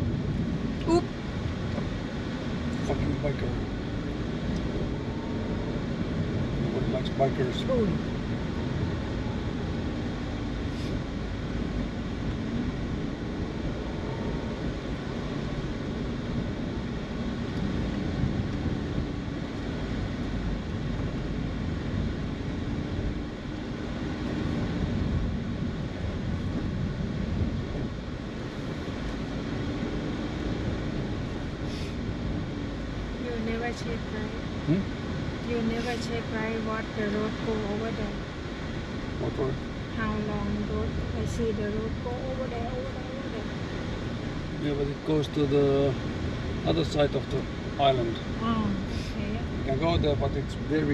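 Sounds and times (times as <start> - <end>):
car engine and road noise: 0.0 - 50.9.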